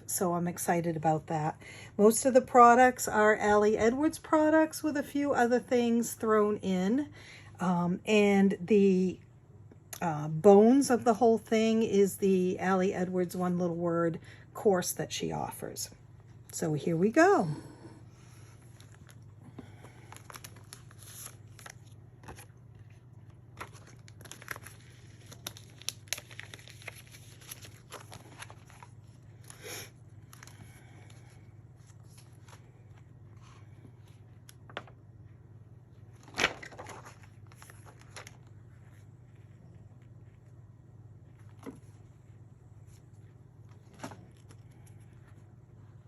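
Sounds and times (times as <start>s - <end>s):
furnace humming: 16.0s - 46.0s
album pages turning: 18.6s - 29.6s, 31.8s - 35.0s, 36.1s - 40.4s, 41.3s - 42.1s, 42.8s - 45.4s
page flap: 36.2s - 38.4s.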